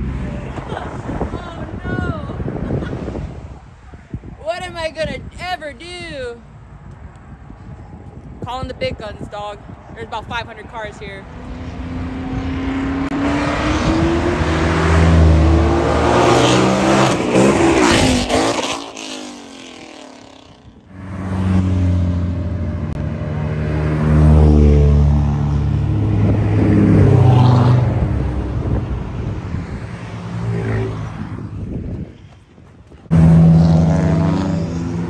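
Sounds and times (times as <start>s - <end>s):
car engines revving past: 11.1s - 32.1s, 33.0s - 35.0s.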